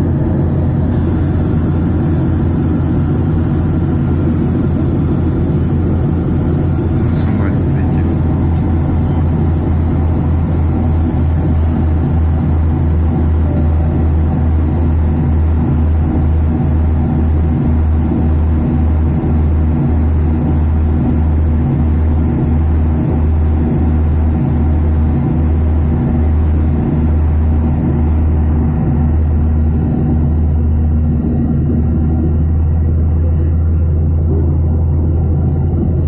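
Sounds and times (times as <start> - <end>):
faint hum: 0.0 - 17.0
airliner cabin drone: 0.0 - 36.0.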